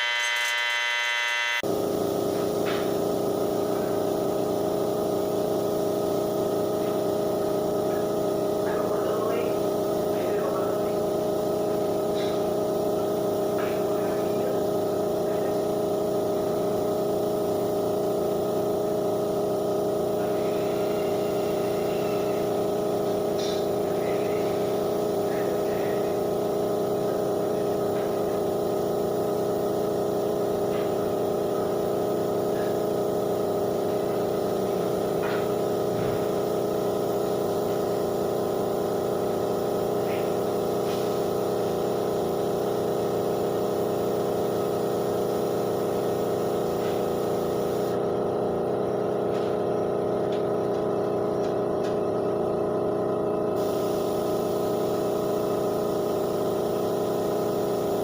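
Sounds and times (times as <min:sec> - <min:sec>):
electric motor humming: 0:00.0 - 0:02.9.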